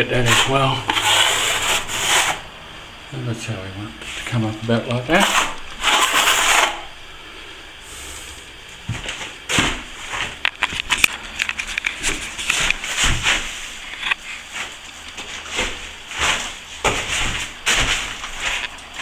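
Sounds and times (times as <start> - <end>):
trowel scraping plaster: 0.0 - 2.5, 4.8 - 6.9.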